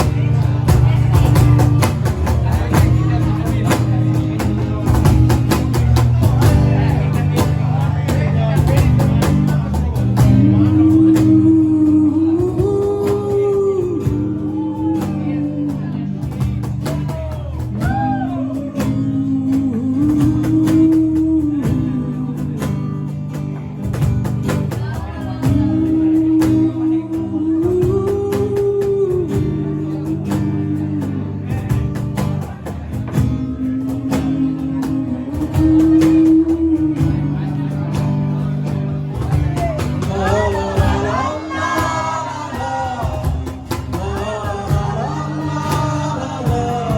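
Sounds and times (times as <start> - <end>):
guitar accompaniment: 0.0 - 46.9
person singing slow melody: 10.3 - 16.2, 39.9 - 46.9.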